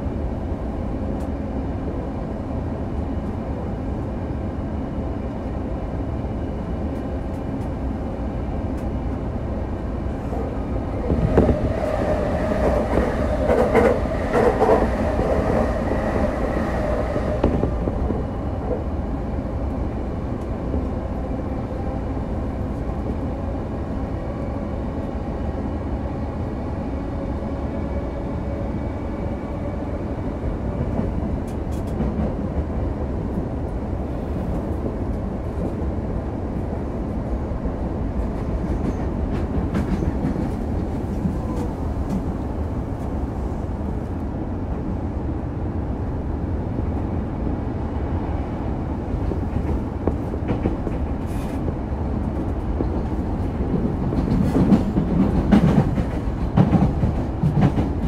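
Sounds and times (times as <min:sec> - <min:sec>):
train wheels rumbling on rail: 0:00.0 - 0:58.0
rail joint clicks: 0:01.0 - 0:01.5, 0:06.8 - 0:08.0, 0:08.6 - 0:09.2, 0:10.1 - 0:22.0, 0:30.6 - 0:35.9, 0:38.2 - 0:43.2, 0:49.1 - 0:58.0.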